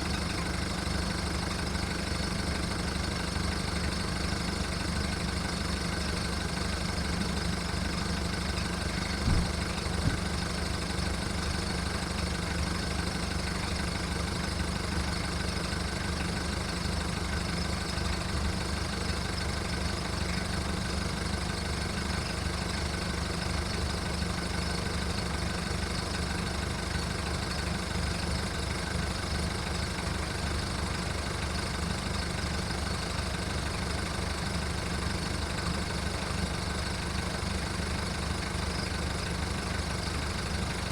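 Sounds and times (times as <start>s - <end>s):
diesel engine idling roughly: 0.0s - 40.9s
engine knocks: 0.2s - 15.2s.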